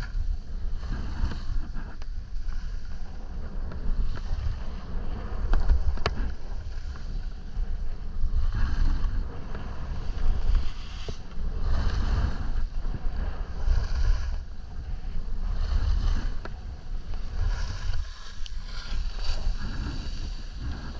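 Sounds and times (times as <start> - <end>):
wind buffeting microphone: 0.0 - 20.9
skis hissing on snow: 17.3 - 20.9.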